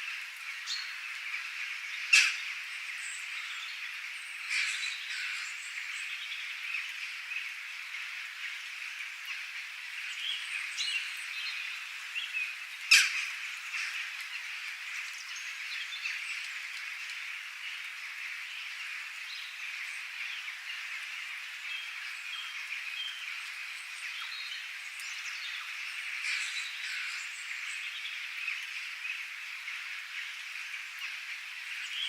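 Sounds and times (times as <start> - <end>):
wild birds chirping: 0.0 - 32.0.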